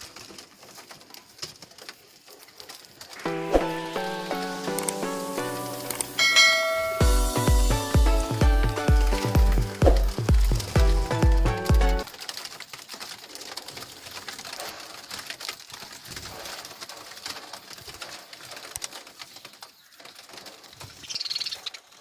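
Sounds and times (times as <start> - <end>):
budgerigars chattering: 21.0 - 21.7.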